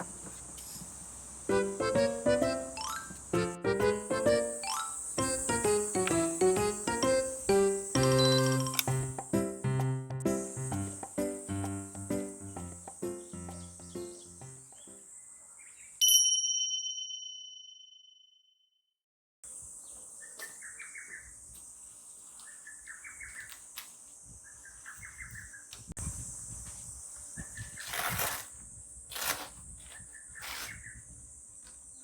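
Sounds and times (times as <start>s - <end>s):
high insect buzz: 0.0s - 15.9s
background music: 1.5s - 14.7s
bird chirping: 10.7s - 16.0s, 19.9s - 21.3s, 22.4s - 23.6s, 24.4s - 25.7s
bright chime: 16.0s - 18.1s.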